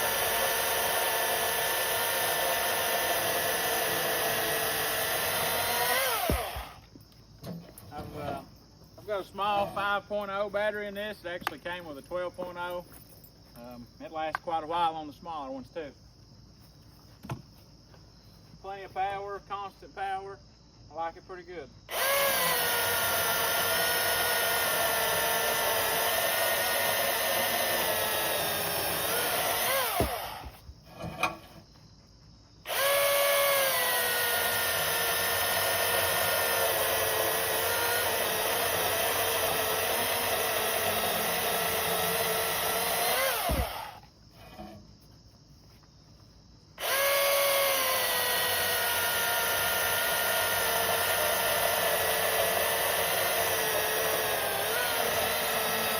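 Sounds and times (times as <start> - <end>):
battery chainsaw cutting log: 0.0 - 6.9, 21.9 - 31.5, 32.7 - 44.8, 46.8 - 55.9.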